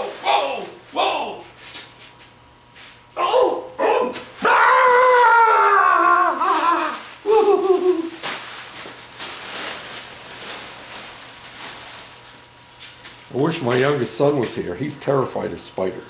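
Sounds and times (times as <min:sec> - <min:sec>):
man crying out in surprise: 0:03.2 - 0:08.2.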